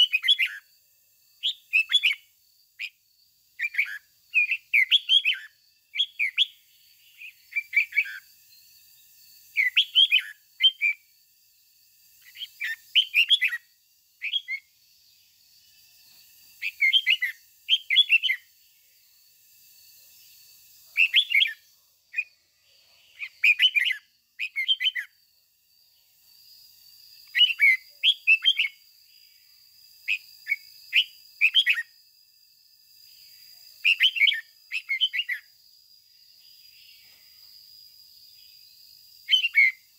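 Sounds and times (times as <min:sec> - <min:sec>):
bird singing whistled notes: 0:00.0 - 0:11.2, 0:12.2 - 0:19.1, 0:19.9 - 0:25.2, 0:27.2 - 0:28.9, 0:30.0 - 0:32.0, 0:33.7 - 0:35.6, 0:39.2 - 0:39.9.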